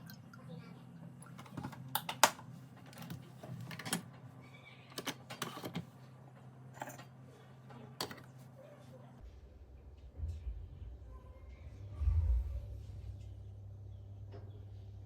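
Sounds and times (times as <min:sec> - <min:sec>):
steady low hum: 0:06.0 - 0:15.0.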